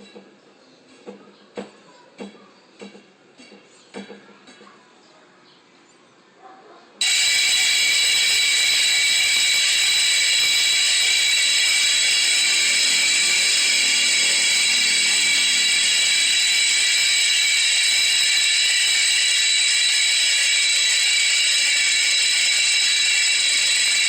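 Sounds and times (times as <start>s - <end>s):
bicycle freewheel hub ratcheting: 7.0s - 24.0s.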